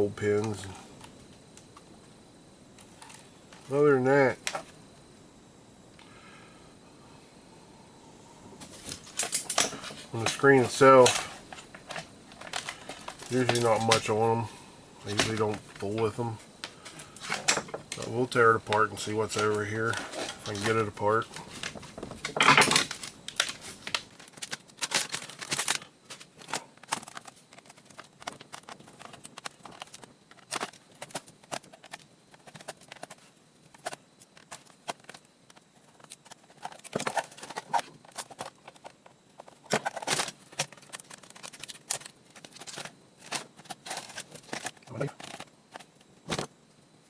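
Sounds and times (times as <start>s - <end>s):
plastic parts clicking and snapping: 11.0s - 14.1s, 15.1s - 18.1s, 19.4s - 46.5s.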